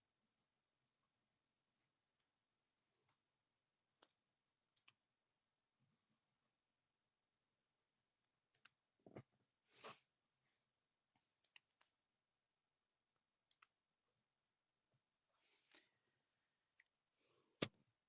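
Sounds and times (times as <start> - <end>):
computer mouse clicks: 4.0 - 5.0, 11.4 - 11.9, 13.4 - 13.8.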